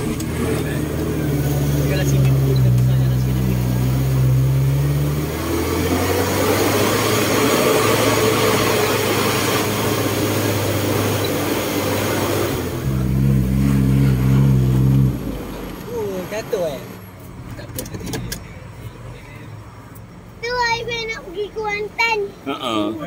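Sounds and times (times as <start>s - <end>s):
vehicle engine idling and revving: 0.0s - 23.0s.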